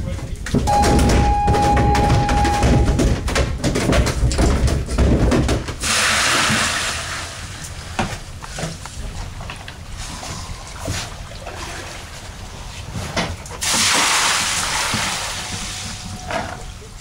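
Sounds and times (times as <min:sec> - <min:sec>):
handling knocks and clatter: 0:00.0 - 0:05.8.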